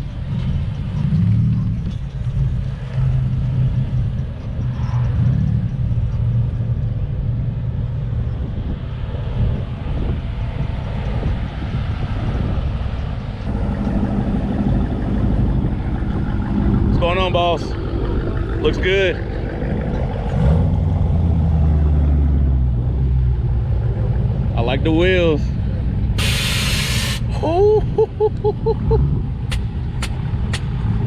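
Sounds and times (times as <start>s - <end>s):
car engine running: 13.4s - 27.6s.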